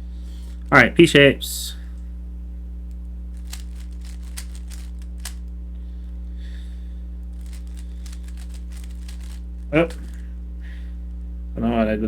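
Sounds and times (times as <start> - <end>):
low electrical hum: 0.0 - 12.0
puzzle cube plastic clicks: 3.4 - 5.5, 7.4 - 10.2.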